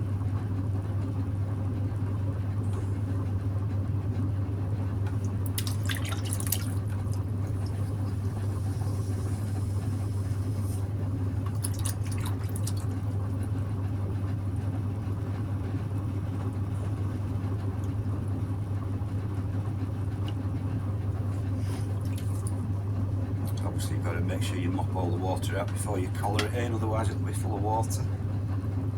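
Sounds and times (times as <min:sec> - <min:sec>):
potter's wheel motor humming: 0:00.0 - 0:28.9
wet sloshy water sounds: 0:04.9 - 0:13.9, 0:20.1 - 0:28.2.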